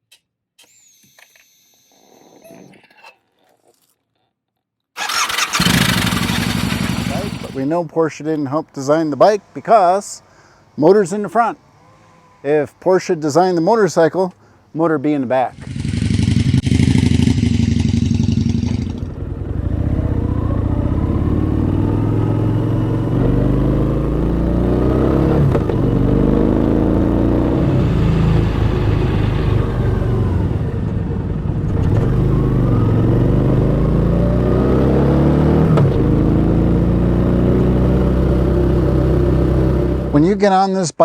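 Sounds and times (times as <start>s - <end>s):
motorcycle engine revving: 5.0s - 7.6s, 15.6s - 40.2s.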